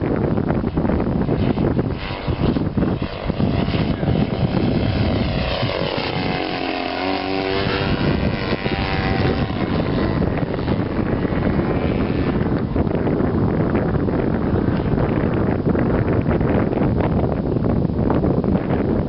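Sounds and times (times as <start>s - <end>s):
model airplane engine droning: 0.0s - 19.0s
wind buffeting microphone: 0.0s - 19.0s.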